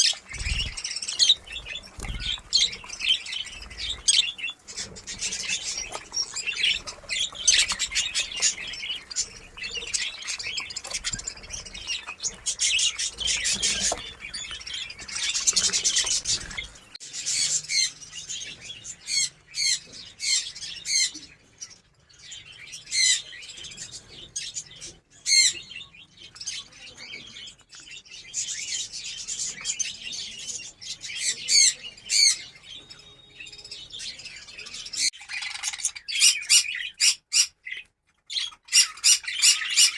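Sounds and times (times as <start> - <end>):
bird squawks and chirps: 0.0 - 21.8, 30.9 - 39.9
budgerigars chattering: 0.0 - 27.5, 28.2 - 39.9.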